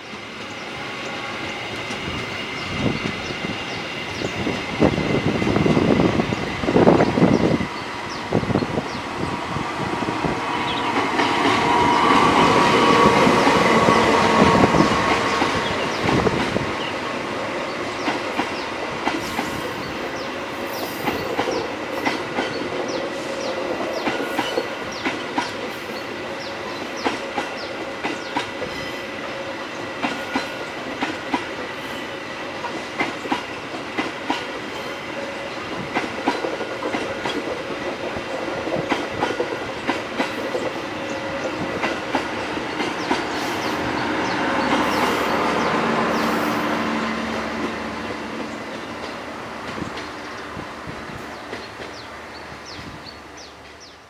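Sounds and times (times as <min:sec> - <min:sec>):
clickety-clack of train wheels: 0:00.0 - 0:54.0
diesel locomotive passing: 0:00.0 - 0:54.0.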